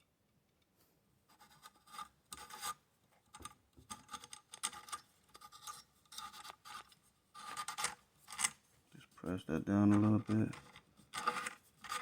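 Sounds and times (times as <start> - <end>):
metal rifle parts scraping: 9.9 - 12.0.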